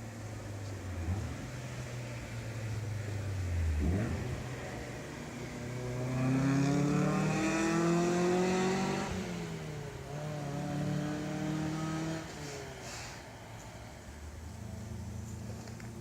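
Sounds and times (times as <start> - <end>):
car engine accelerating: 0.7 - 16.0.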